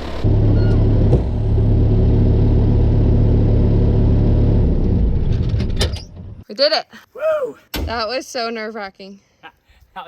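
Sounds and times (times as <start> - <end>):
skid steer engine humming: 0.0 - 5.6.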